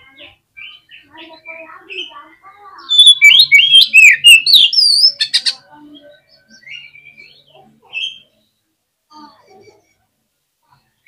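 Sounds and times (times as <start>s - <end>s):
bird whistling song: 2.8s - 5.6s.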